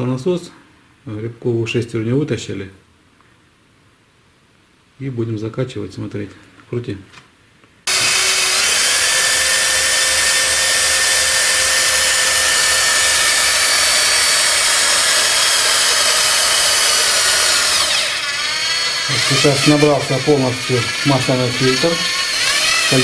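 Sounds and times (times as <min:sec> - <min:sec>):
cordless drill whining: 0:07.9 - 0:23.0.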